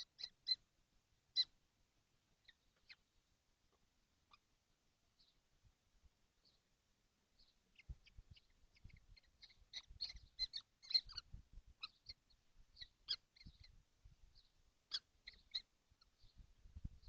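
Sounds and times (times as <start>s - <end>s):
young birds squeaky calls: 0.0s - 0.6s, 1.3s - 1.6s, 7.4s - 13.8s, 14.4s - 16.4s.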